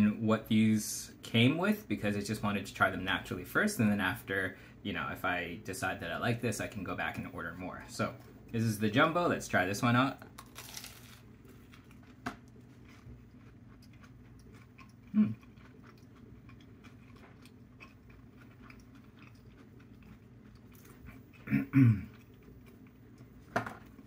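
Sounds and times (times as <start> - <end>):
person chewing crunchy food: 10.2 - 24.0
hum-like vocal sound: 15.1 - 15.4.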